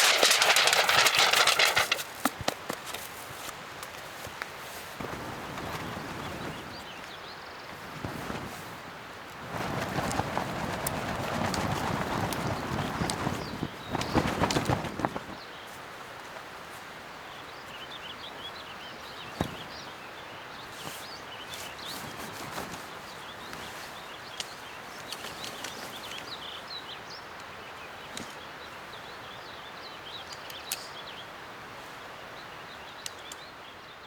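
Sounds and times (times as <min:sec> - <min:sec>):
rain hissing: 0:00.0 - 0:02.2
small birds chirping faintly: 0:00.0 - 0:34.0.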